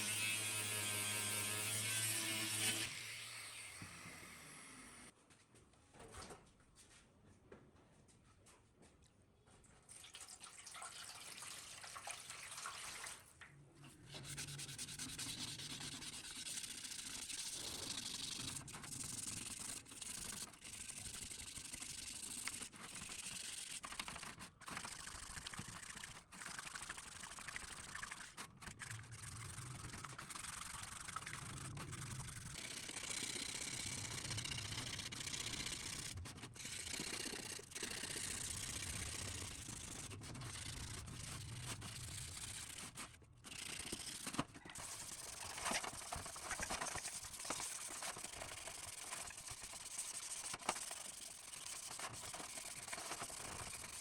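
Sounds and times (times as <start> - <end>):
hand scrubbing back and forth: 14.1 - 33.0, 34.8 - 54.0.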